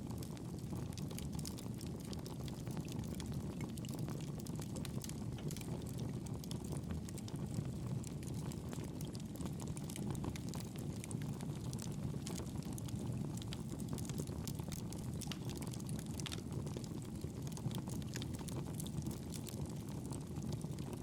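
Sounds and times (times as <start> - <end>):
burning wood crackling: 8.4 - 20.9.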